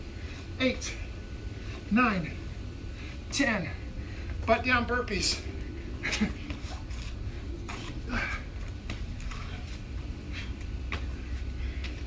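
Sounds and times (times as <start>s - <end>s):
body movements: 5.2s - 12.0s.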